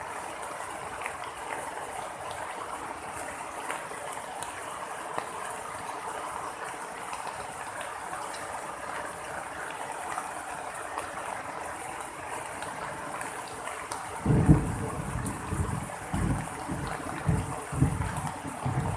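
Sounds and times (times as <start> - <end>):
heavy rain falling: 0.0 - 18.9
thunder rumble: 14.2 - 18.9.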